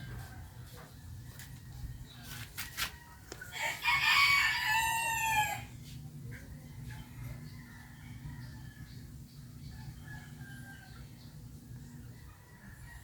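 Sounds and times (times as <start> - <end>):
rooster crowing: 2.8 - 5.7, 7.0 - 9.0, 9.8 - 11.2, 12.2 - 13.0.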